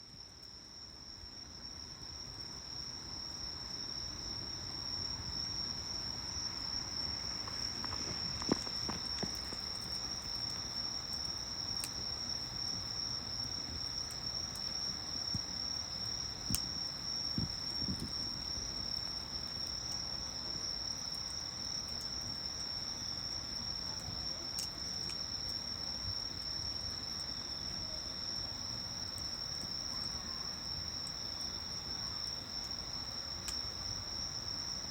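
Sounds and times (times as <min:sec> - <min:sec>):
insects trilling: 0:01.4 - 0:34.9
wood fire popping and crackling: 0:05.8 - 0:20.2.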